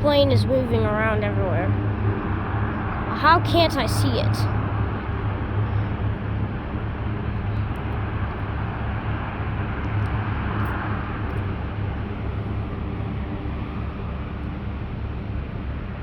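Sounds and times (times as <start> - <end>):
distant turboprop engines: 0.0 - 16.0.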